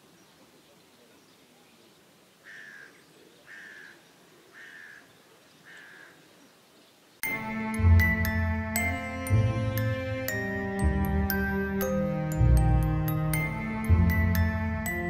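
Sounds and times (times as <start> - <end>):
bird calling: 0.0 - 7.0
faint outdoor hiss: 0.0 - 15.0
instrumental music: 7.2 - 15.0.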